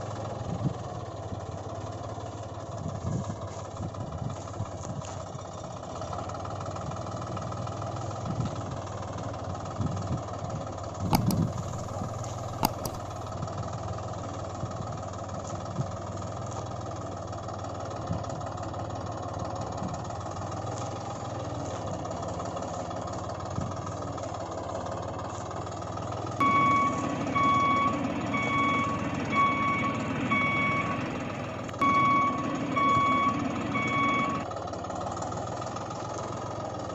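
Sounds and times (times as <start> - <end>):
toy vehicle engine hum: 0.6 - 36.9
sharp clicks: 11.1 - 13.2
reversing beeps: 26.4 - 34.4.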